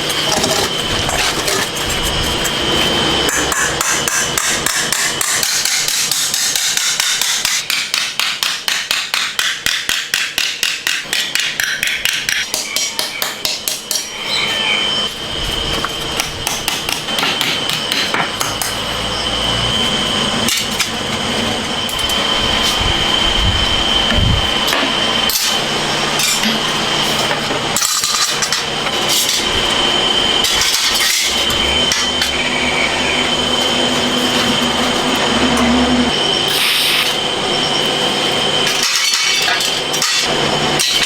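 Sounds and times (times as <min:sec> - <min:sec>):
thin high whine: 0:00.0 - 0:05.2, 0:12.4 - 0:41.0
rapid hammering: 0:03.3 - 0:14.1.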